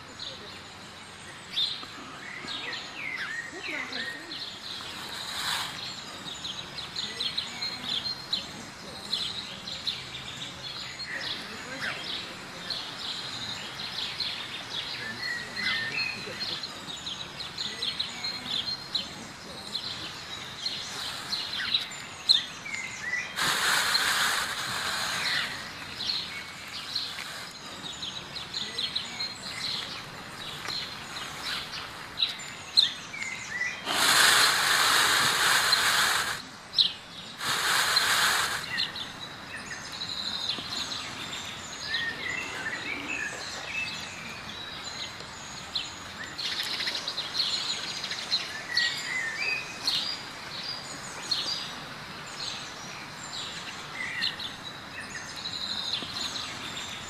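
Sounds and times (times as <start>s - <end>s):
small birds chirping: 0.0s - 57.0s
rushing hiss: 4.4s - 8.1s, 19.8s - 28.2s, 33.5s - 36.6s, 37.3s - 39.3s.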